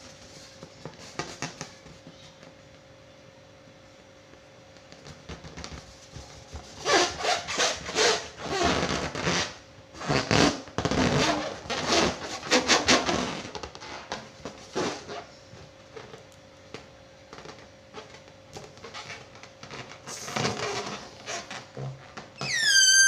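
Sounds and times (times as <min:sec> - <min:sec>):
rubber balloon squeaking: 0:06.6 - 0:15.4, 0:17.3 - 0:23.0.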